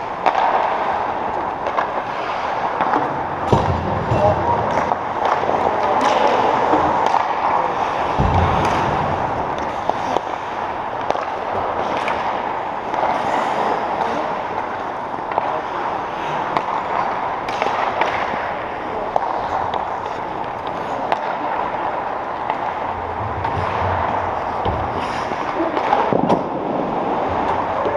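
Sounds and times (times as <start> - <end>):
hits against rink boards: 0.0 - 14.7, 16.4 - 27.9
heavy thud: 8.1 - 9.4.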